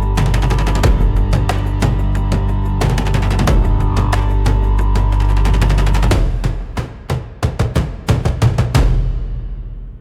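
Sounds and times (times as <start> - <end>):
driving soundtrack music: 0.0 - 9.5.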